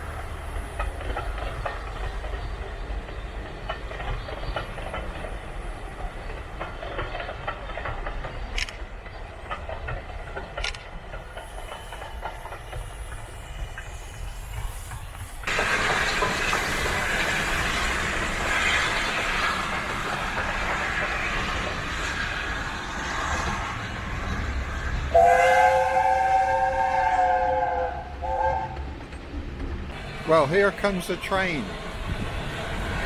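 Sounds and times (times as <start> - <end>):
train wheels clattering on rails: 0.0 - 33.0
steam whistle chord: 25.1 - 28.8.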